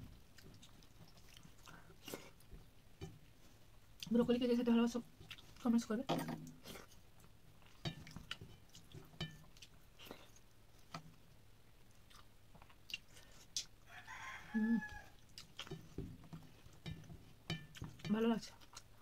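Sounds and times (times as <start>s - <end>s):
chewing and mouth smacks: 0.3s - 2.6s, 5.2s - 5.6s, 6.4s - 11.0s, 12.0s - 13.8s, 15.2s - 15.9s, 17.7s - 19.0s.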